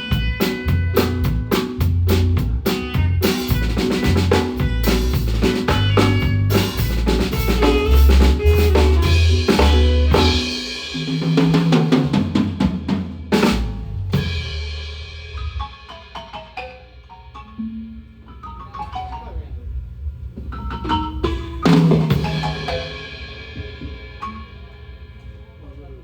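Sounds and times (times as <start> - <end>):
bass line: 0.0 - 15.6
drum kit playing: 0.0 - 18.9, 19.7 - 25.6.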